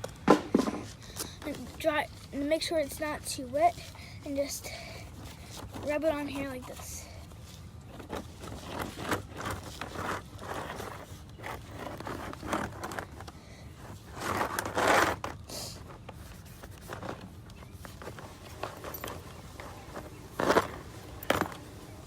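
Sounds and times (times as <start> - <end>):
cloth wiping a helmet: 16.0 - 22.0.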